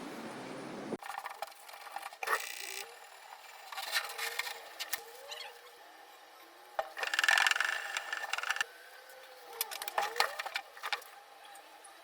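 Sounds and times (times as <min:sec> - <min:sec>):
rapid mechanical rattle: 0:06.9 - 0:08.7.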